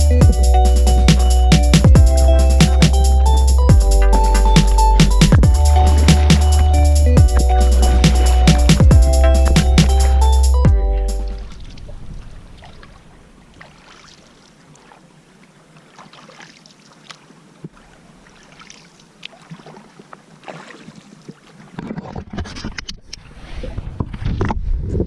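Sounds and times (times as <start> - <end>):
paddle splashing water: 11.5 - 22.4
wind rumbling on microphone: 23.5 - 25.0.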